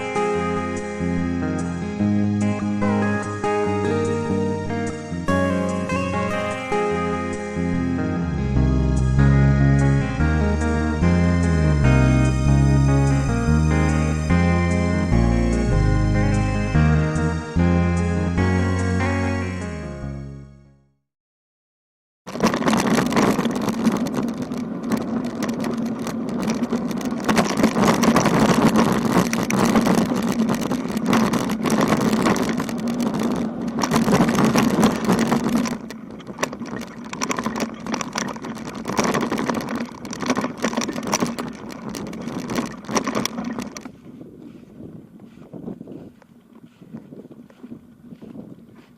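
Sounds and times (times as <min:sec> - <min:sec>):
bicycle road noise: 0:00.0 - 0:20.2, 0:22.3 - 0:48.9
wind rushing over microphone: 0:22.3 - 0:48.9.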